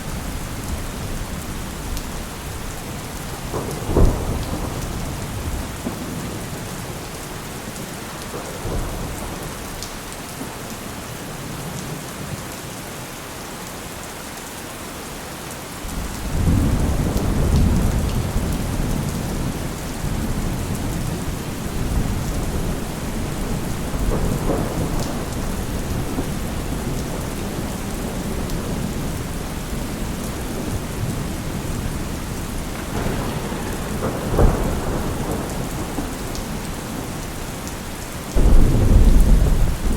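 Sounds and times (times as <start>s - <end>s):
rolling thunder: 0.0s - 7.1s, 15.9s - 39.9s
steady rain: 0.0s - 39.9s.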